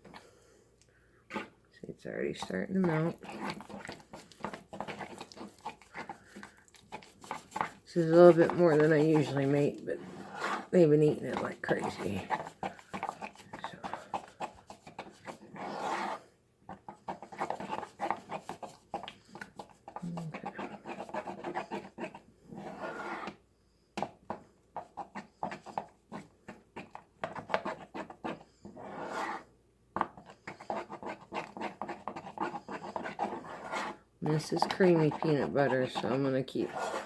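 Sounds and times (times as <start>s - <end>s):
spoon scraping a pan: 2.2s - 16.2s, 26.8s - 37.0s.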